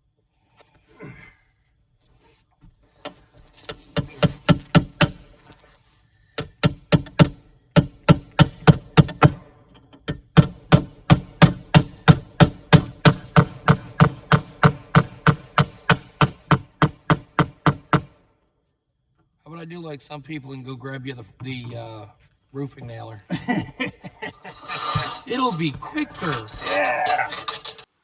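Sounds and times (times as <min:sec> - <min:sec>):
hammer striking nails: 0:03.6 - 0:05.4, 0:06.4 - 0:18.2.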